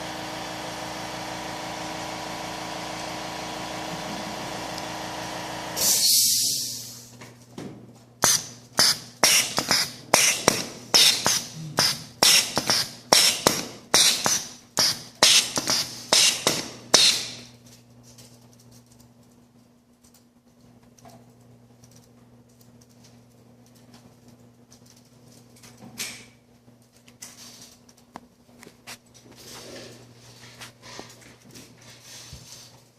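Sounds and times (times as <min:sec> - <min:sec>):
hiss of exhausting air: 0:05.8 - 0:07.1
pneumatic cylinder clacking: 0:08.2 - 0:17.5.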